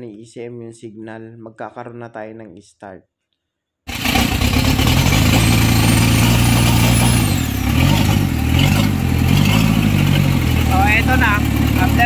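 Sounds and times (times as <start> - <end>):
diesel engine running: 3.9 - 12.0.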